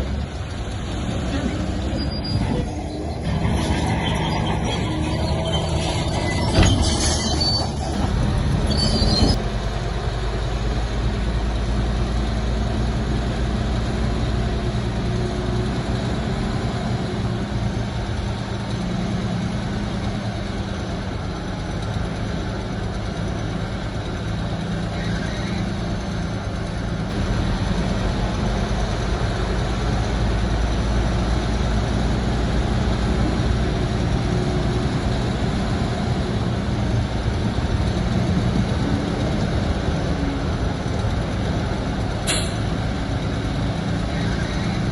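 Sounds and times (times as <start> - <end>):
bulldozer diesel engine running: 0.0 - 44.9
steel tracks squealing and clanking: 1.1 - 9.4, 24.7 - 26.4, 42.2 - 42.8, 43.8 - 44.9.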